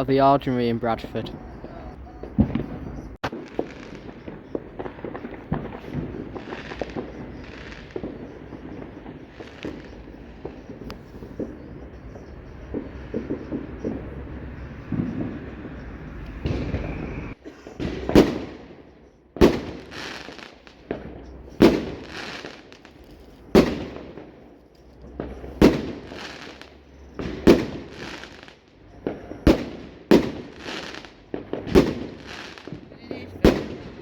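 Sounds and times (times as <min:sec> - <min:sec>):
crackling hissing tails: 0:00.0 - 0:34.0
fireworks banging: 0:00.0 - 0:34.0.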